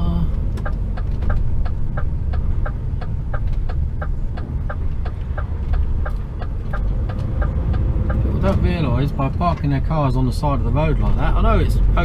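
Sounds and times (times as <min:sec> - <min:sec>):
diesel engine running low: 0:00.0 - 0:12.0
short pitched ticking: 0:00.3 - 0:08.4.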